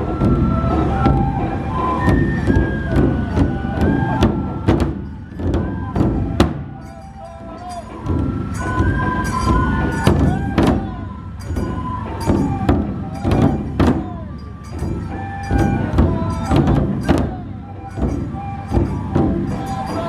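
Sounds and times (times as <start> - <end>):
bamboo flute melody: 0.0 - 20.0
barrel drums beating: 0.0 - 20.0
small cymbals clashing: 6.8 - 20.0.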